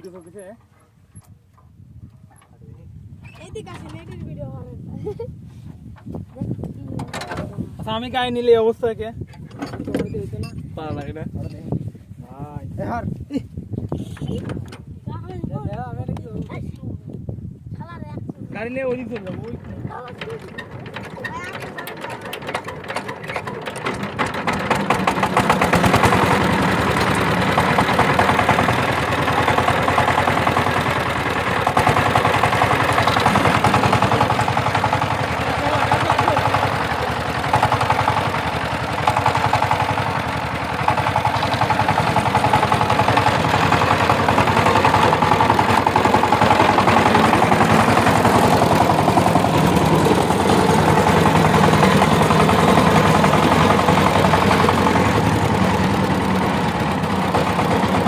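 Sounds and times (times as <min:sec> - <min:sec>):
tiller engine chugging: 0:00.0 - 0:04.7, 0:18.6 - 0:58.0.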